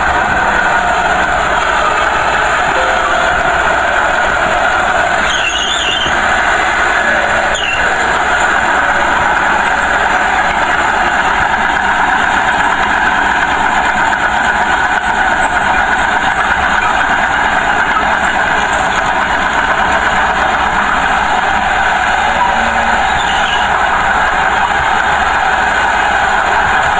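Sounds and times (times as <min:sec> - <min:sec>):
bulldozer engine clattering: 0:00.0 - 0:26.9
brief high squeals: 0:02.8 - 0:06.6, 0:07.4 - 0:08.0, 0:22.0 - 0:24.8.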